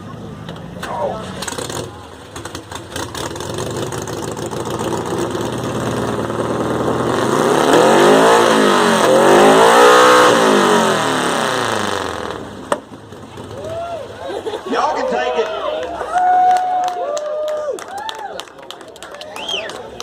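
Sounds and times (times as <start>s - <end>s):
car engine revving: 0.0s - 13.7s.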